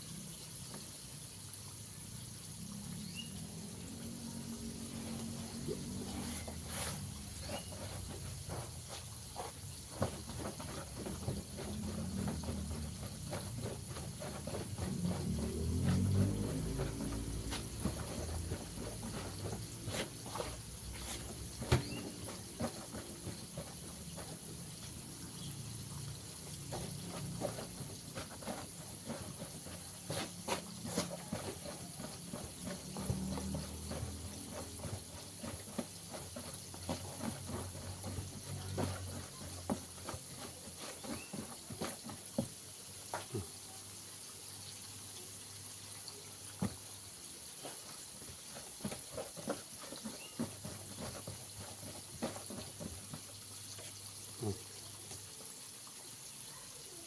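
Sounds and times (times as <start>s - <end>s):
hands tossing chicken in flour: 4.7s - 25.8s, 26.4s - 42.0s.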